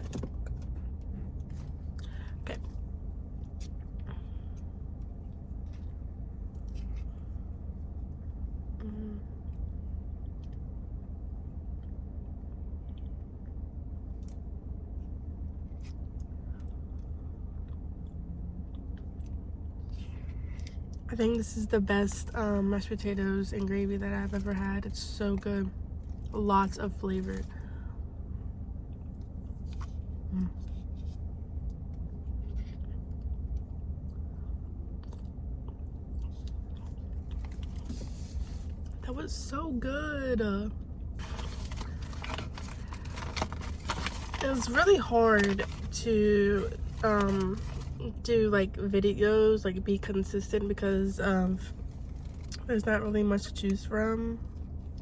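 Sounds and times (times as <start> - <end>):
soft chewing: 0.0 - 10.9, 11.7 - 21.0, 28.8 - 39.0
car idling from inside cabin: 0.0 - 55.0
low rumble: 0.0 - 55.0.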